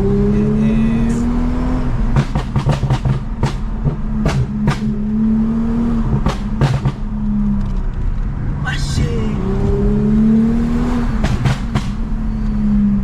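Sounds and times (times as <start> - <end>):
car engine drone: 0.0 - 13.0
exhaust pops and crackles: 2.1 - 5.1, 6.0 - 8.3, 11.1 - 12.2.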